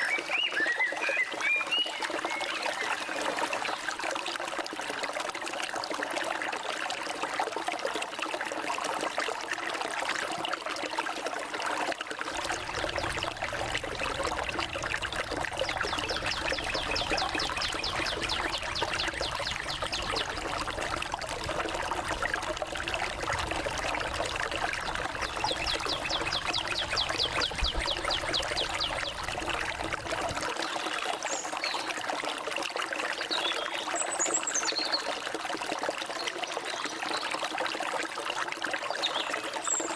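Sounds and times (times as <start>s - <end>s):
stream trickling and splashing: 0.0s - 39.9s
high bird chirps: 15.6s - 20.3s, 25.3s - 29.2s.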